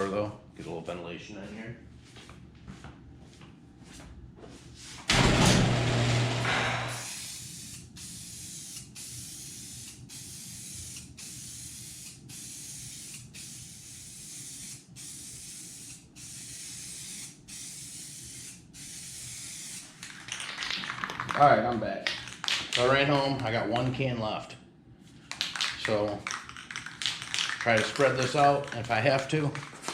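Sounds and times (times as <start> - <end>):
aerosol can spraying: 7.0 - 19.9.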